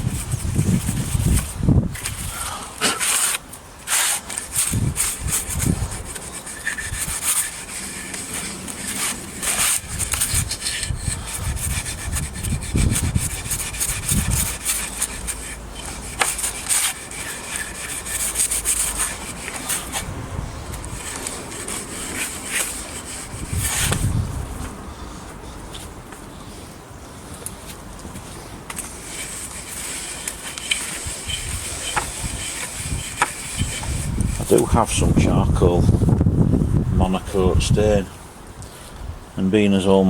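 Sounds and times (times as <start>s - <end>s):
abrasive pad scrubbing wood: 0.0s - 24.7s, 28.2s - 35.2s.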